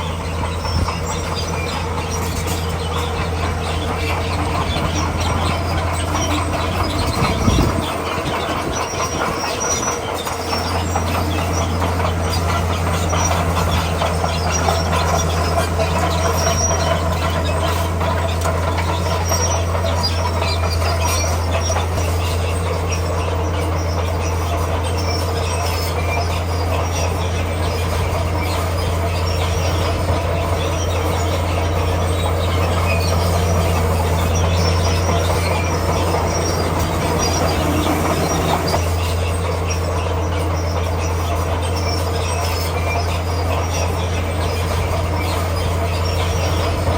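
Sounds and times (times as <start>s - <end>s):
diesel engine under load: 0.0s - 46.9s
steel tracks squealing and clattering: 0.0s - 46.9s.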